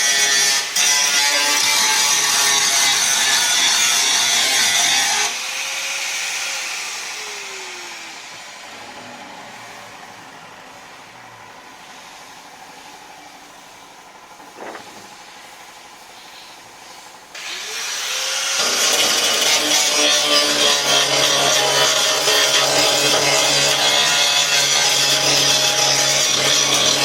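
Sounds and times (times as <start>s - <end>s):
steady background noise: 0.0s - 20.1s.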